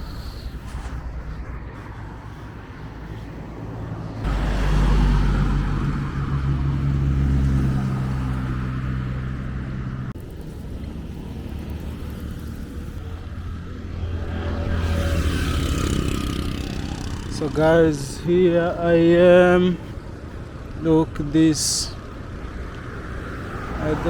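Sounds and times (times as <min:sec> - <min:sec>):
low rumble: 0:00.0 - 0:15.9
vehicle engine running: 0:00.0 - 0:24.0.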